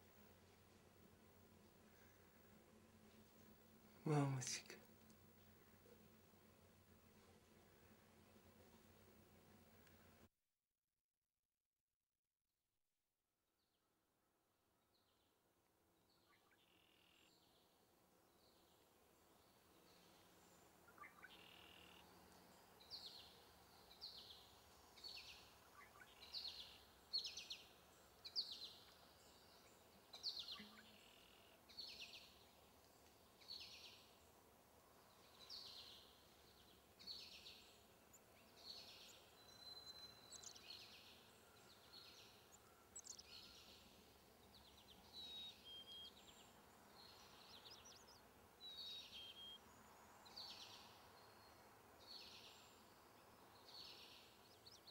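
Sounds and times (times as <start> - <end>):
faint outdoor background: 0.0 - 10.4, 12.4 - 54.9
small bird chirping: 35.2 - 49.7.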